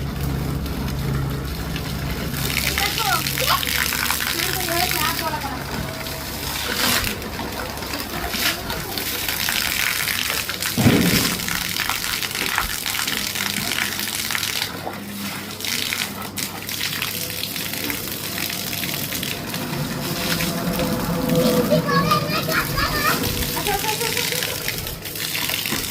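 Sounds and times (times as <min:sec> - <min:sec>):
water running and splashing: 0:00.0 - 0:25.9
loud low splash: 0:10.7 - 0:12.8.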